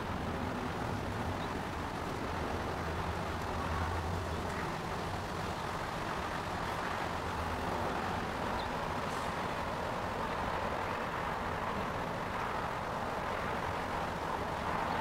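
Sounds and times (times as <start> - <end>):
rumble of vehicle noise: 0.0 - 15.0.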